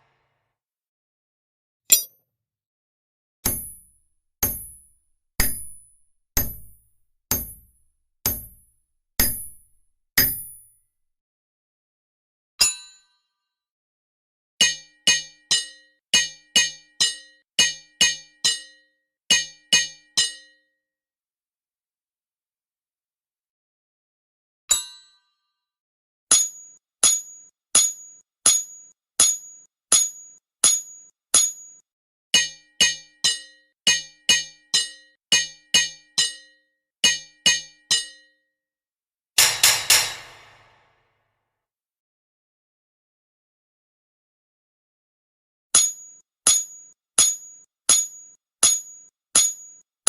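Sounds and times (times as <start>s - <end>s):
hammer clanging on anvil: 1.9s - 2.1s, 3.5s - 8.6s, 9.2s - 9.6s, 39.4s - 40.9s.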